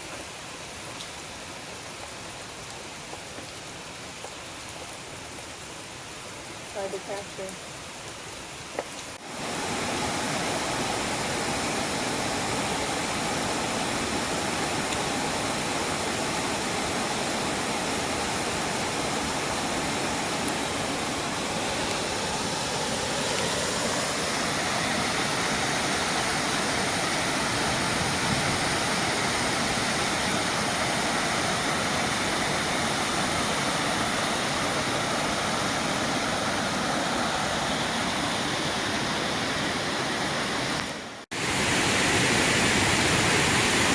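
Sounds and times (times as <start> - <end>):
waterfall rushing: 9.2 - 43.9.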